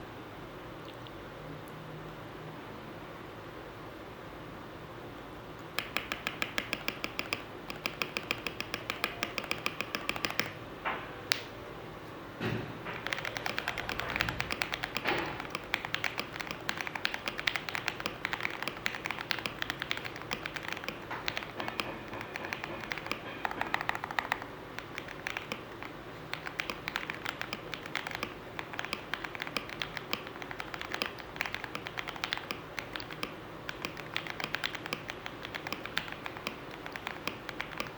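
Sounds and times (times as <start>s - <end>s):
fast typing on mechanical keyboard: 5.6s - 10.6s, 12.9s - 37.9s.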